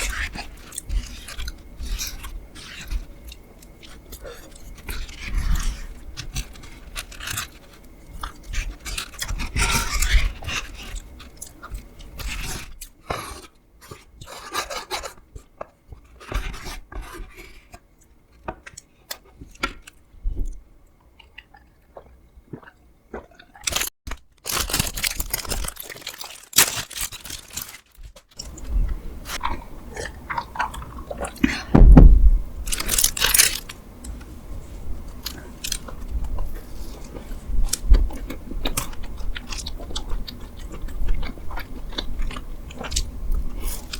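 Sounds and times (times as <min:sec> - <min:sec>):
person chewing: 0:21.2 - 0:31.9, 0:32.6 - 0:43.9
food crunching: 0:21.2 - 0:43.9.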